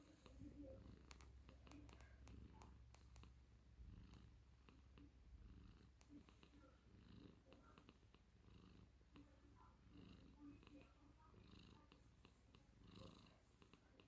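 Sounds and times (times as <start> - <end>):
faint clicks: 0.0 - 6.7
cat purring faintly: 0.0 - 14.0.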